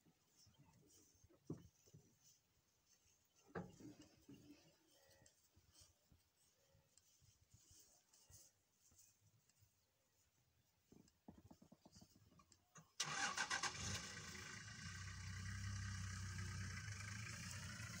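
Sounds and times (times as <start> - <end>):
vehicle engine starting and idling: 13.0 - 18.0.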